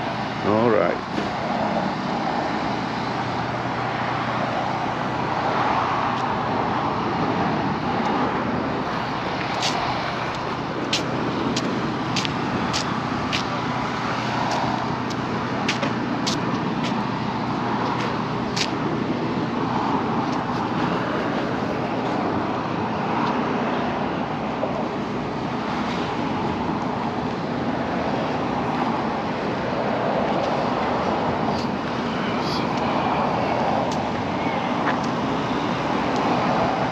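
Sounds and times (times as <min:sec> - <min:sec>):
crisp footsteps: 0:08.9 - 0:13.6.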